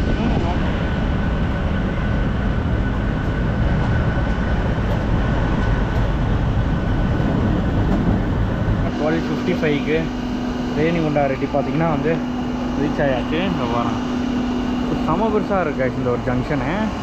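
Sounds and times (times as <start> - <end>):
train wheels rumbling on rails: 0.0 - 9.8.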